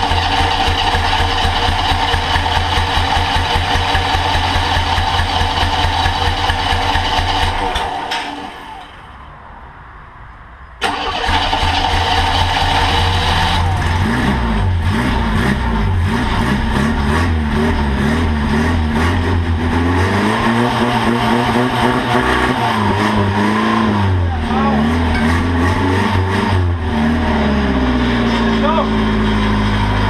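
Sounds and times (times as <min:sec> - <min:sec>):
trike engine revving: 0:00.0 - 0:08.9, 0:10.8 - 0:30.0.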